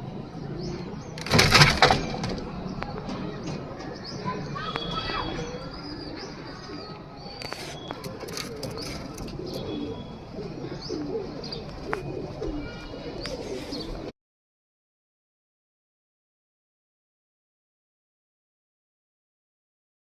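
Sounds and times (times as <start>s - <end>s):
pigeons cooing: 4.0s - 14.1s.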